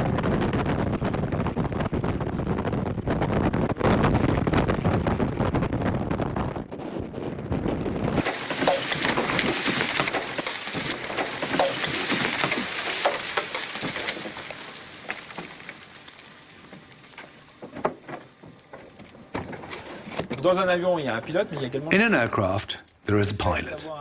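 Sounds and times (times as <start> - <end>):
low wind-like rumble: 0.0 - 8.5
crackling hiss with clicks: 8.2 - 19.2.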